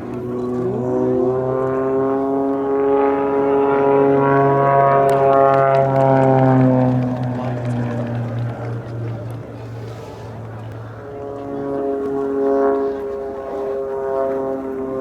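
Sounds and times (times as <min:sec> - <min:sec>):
propeller plane flying overhead: 0:00.0 - 0:15.0.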